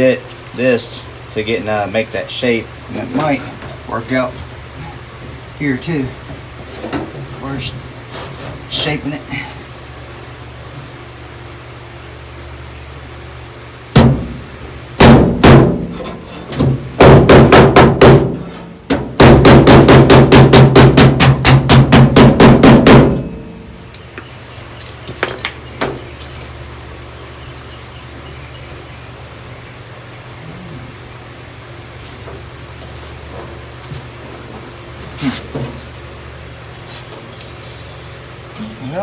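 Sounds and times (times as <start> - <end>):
hammer striking sheet steel: 17.0 - 23.6.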